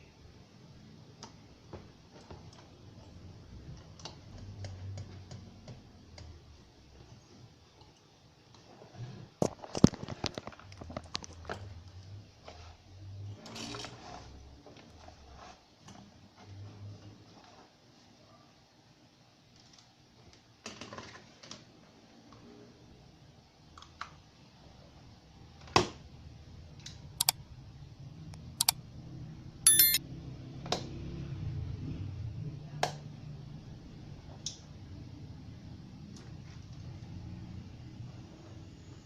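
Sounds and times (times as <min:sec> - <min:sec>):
sharp clicks and taps: 0:29.7 - 0:30.0.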